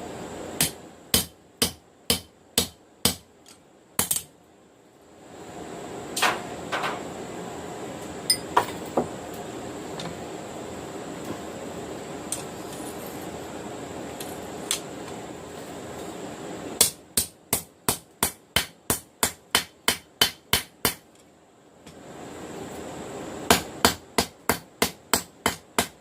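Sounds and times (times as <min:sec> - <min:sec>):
hammer striking steel on anvil: 0:00.6 - 0:03.2.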